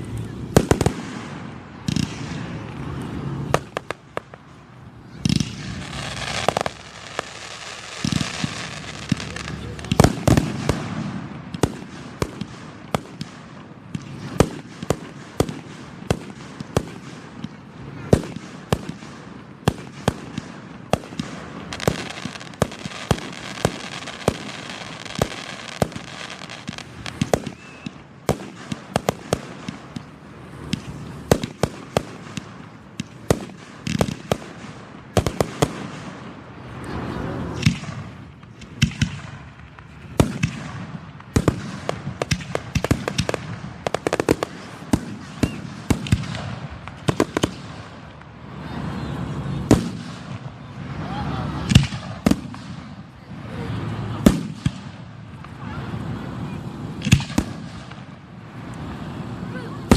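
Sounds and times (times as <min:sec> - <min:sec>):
firework crackle: 0:00.0 - 0:59.9
firework shells bursting: 0:37.6 - 0:48.3.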